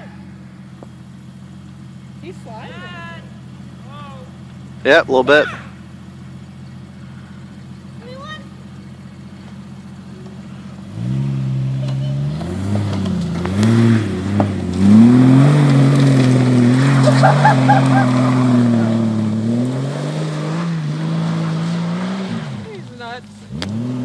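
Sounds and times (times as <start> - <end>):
engine revving under load: 9.7 - 24.0.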